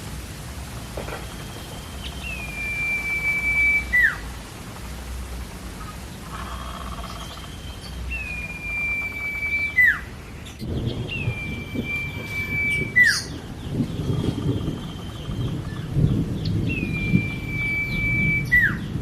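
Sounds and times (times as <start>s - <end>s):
low rumbling noise: 0.0s - 19.0s
bird whistling: 1.4s - 4.2s, 6.4s - 13.4s, 16.7s - 18.9s.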